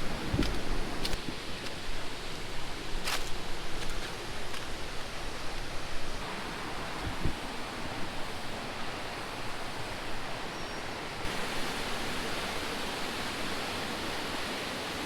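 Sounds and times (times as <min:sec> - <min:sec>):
waterfall rushing: 0:06.2 - 0:15.0.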